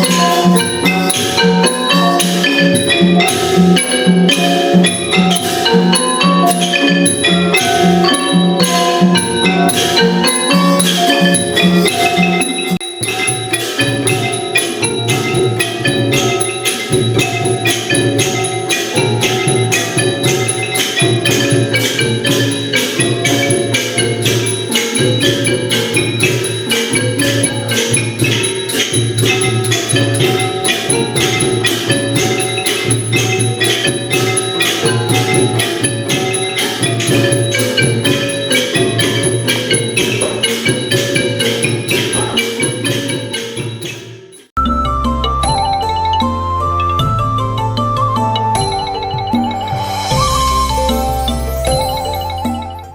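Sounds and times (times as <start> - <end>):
sharp rhythmic strokes: 0.0 - 44.6
struck percussion instruments melody: 0.0 - 52.9
xylophone ensemble music: 0.0 - 52.9.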